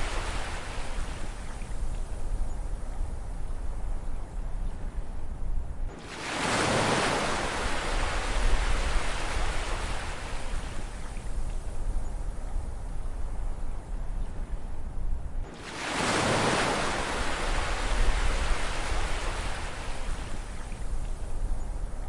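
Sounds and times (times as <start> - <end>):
low rumble of surf: 0.0 - 22.0
ocean wave breaking: 6.0 - 10.6, 15.5 - 20.2.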